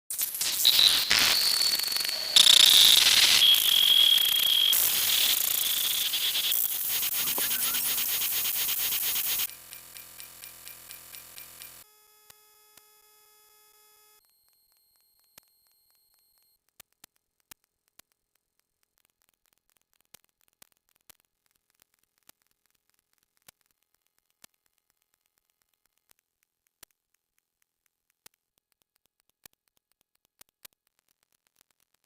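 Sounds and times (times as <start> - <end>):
shrill whistle-like sound effects: 0.5 - 8.6
faint pulsing with steady tones: 1.7 - 9.5.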